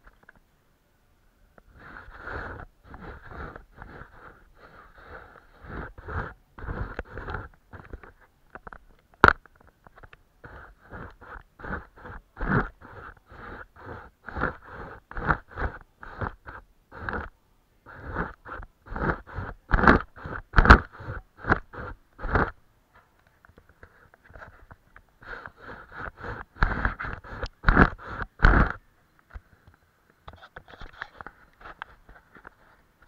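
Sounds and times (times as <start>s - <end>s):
paintbrush strokes on paper: 1.7s - 8.2s, 10.4s - 22.6s, 23.8s - 28.8s.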